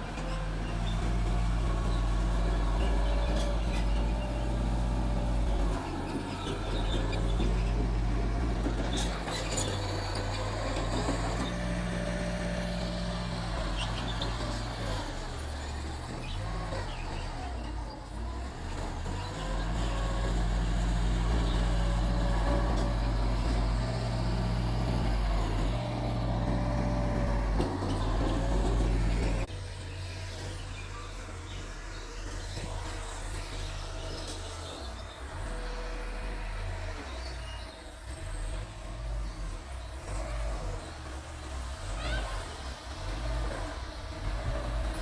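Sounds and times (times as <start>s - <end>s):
bulldozer diesel engine running: 0.0s - 45.0s.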